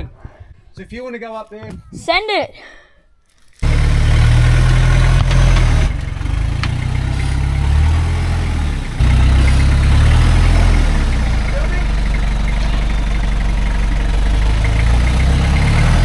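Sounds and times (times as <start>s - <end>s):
diesel truck engine running: 3.6s - 16.0s.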